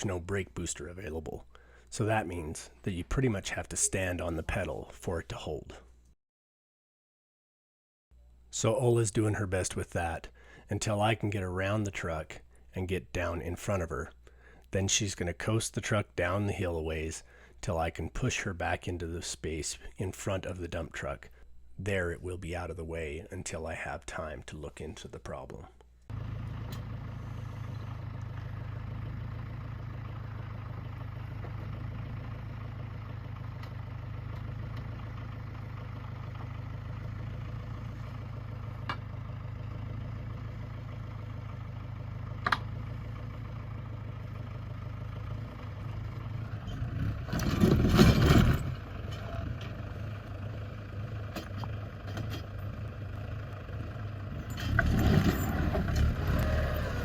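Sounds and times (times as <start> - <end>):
vehicle engine idling: 26.1 - 57.0.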